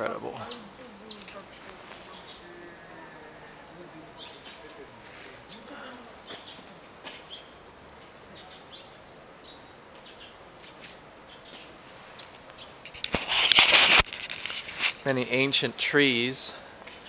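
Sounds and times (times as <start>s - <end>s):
small birds chirping: 0.0s - 13.7s
faint outdoor background hiss: 0.0s - 17.0s.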